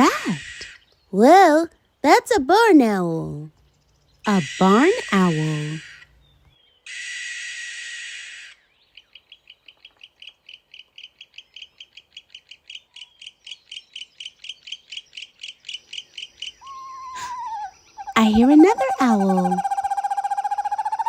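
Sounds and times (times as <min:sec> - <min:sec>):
barn owl screech: 0:00.1 - 0:00.8, 0:04.3 - 0:06.1, 0:06.9 - 0:08.6, 0:16.6 - 0:21.0.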